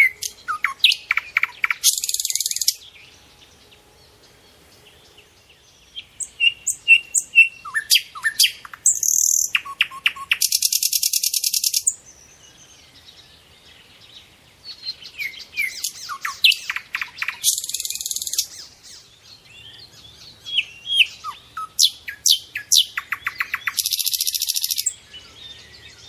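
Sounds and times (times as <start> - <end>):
fast buzzy bird trill: 0.0 - 2.8
birds chirping and whistling: 0.0 - 26.0.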